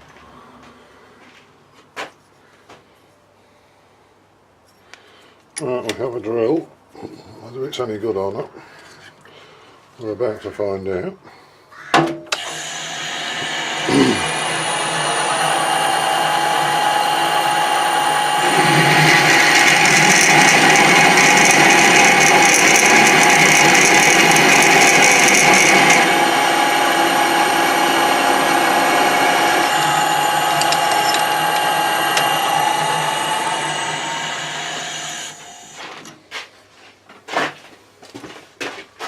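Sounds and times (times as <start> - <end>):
drill bit cutting metal: 12.4 - 35.8
machine tool hum: 12.4 - 36.0.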